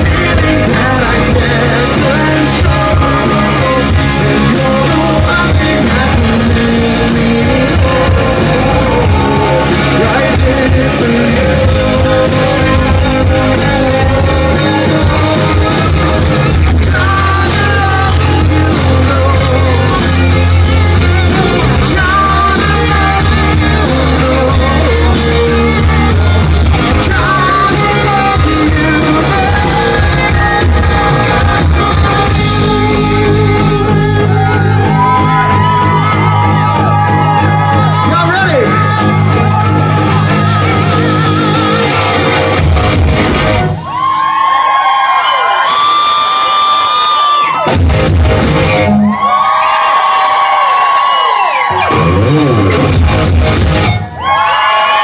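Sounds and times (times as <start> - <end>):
male lead vocal: 0.0 - 43.0
live rock band playing: 0.0 - 55.0.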